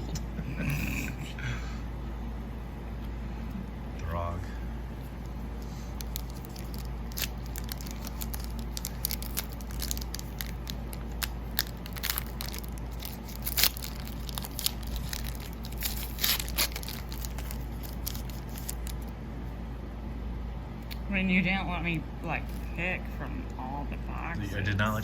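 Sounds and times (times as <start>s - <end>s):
air conditioner hum: 0.0s - 25.0s
foil wrapper crinkling and tearing: 5.2s - 19.1s.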